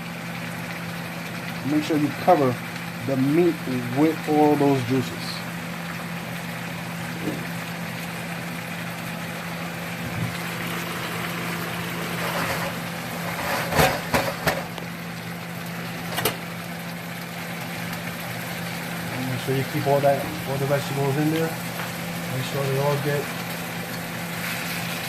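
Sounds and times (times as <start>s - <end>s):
food sizzling in a frying pan: 0.0s - 25.0s
low hum: 9.9s - 16.2s
utensil scraping a pan: 11.9s - 14.6s.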